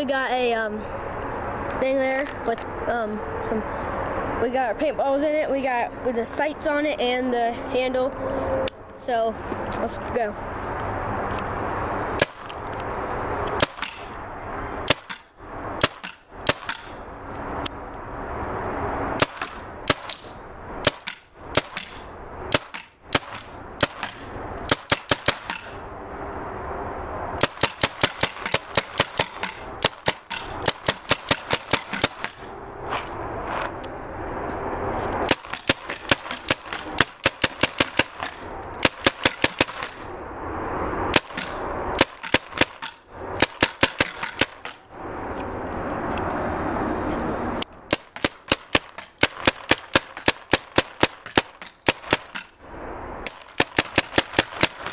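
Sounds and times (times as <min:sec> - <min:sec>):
paintball marker firing shots: 0:12.2 - 0:12.6, 0:13.6 - 0:14.1, 0:14.8 - 0:17.0, 0:19.2 - 0:25.8, 0:27.4 - 0:32.5, 0:35.2 - 0:40.0, 0:41.1 - 0:44.8, 0:47.9 - 0:52.6, 0:53.3 - 0:54.9.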